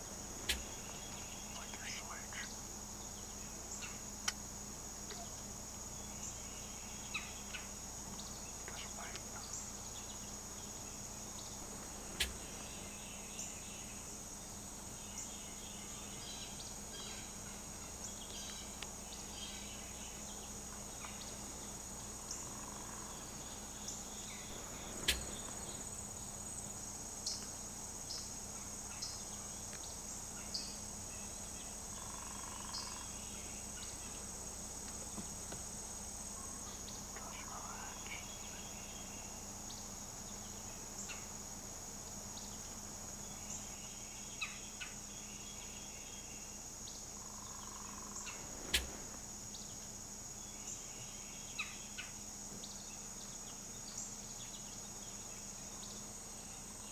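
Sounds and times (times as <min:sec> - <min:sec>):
bird chirps: 0:00.0 - 0:02.5, 0:47.6 - 0:49.8
turkey calling: 0:00.0 - 0:02.6, 0:11.5 - 0:13.7, 0:22.3 - 0:26.4, 0:48.2 - 0:49.2
high insect drone: 0:00.0 - 0:56.9
sharp clicks: 0:24.6 - 0:25.7, 0:48.6 - 0:49.1.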